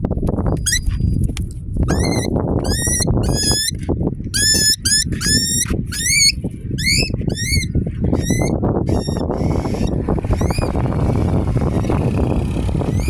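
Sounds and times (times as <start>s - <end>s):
cockatiel squawking: 1.9s - 3.7s, 4.4s - 9.8s.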